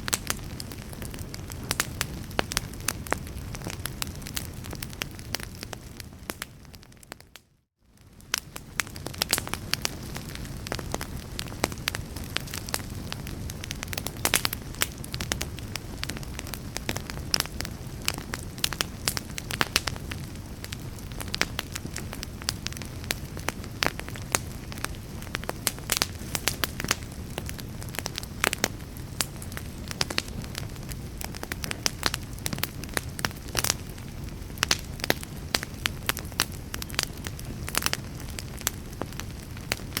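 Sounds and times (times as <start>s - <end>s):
wood fire crackling and popping: 0.0s - 40.0s.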